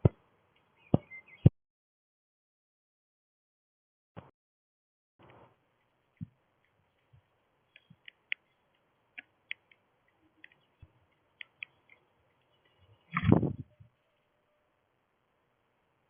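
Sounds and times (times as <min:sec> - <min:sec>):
small birds chipping: 0:00.0 - 0:01.5, 0:05.2 - 0:14.8.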